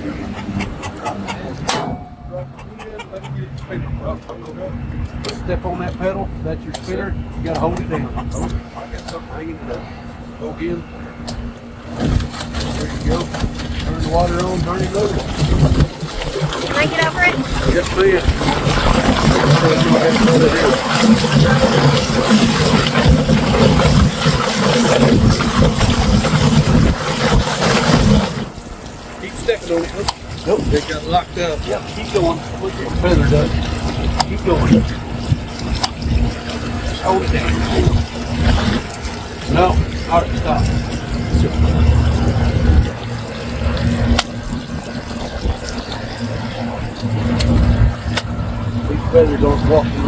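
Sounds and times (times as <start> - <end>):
chicken plucker running: 0.0 - 4.1, 7.8 - 8.6, 11.9 - 42.9
water running: 12.0 - 50.0.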